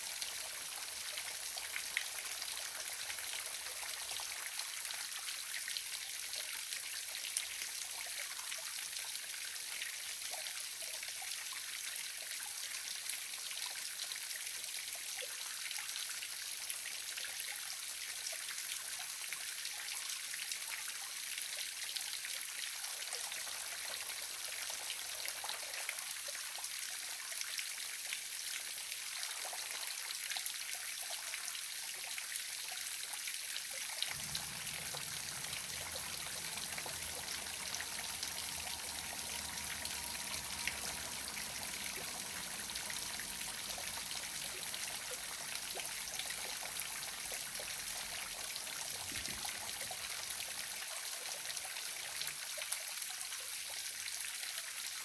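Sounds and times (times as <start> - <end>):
small waterfall splashing: 0.0 - 55.0.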